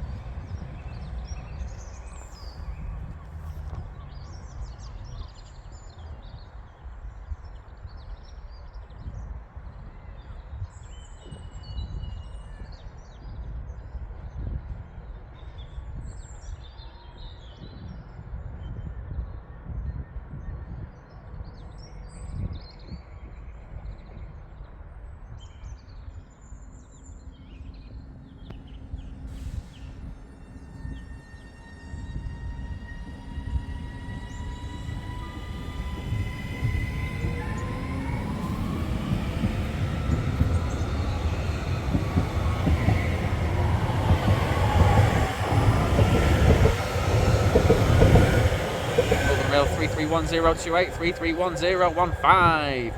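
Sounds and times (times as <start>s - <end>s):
train rumbling on rails: 0.0s - 16.4s, 28.0s - 52.9s
small birds chirping: 32.3s - 52.3s.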